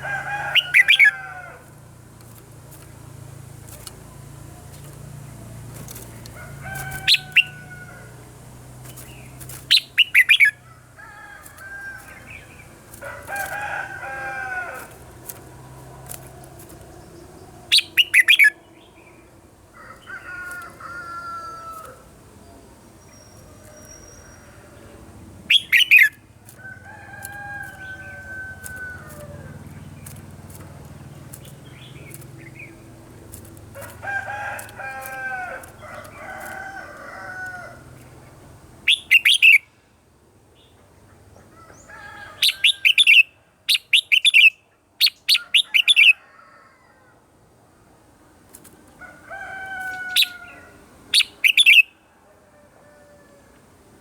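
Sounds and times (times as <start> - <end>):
rooster crowing: 0.0 - 1.9, 6.3 - 8.4, 10.4 - 15.2, 19.7 - 22.1, 23.5 - 25.2, 26.5 - 29.8, 33.7 - 38.0, 41.5 - 42.9, 45.4 - 47.3, 49.0 - 50.9, 51.7 - 53.6
bulbuls singing sharp phrases: 0.0 - 20.8, 21.6 - 26.6, 37.5 - 39.8, 42.3 - 46.2, 50.1 - 52.0.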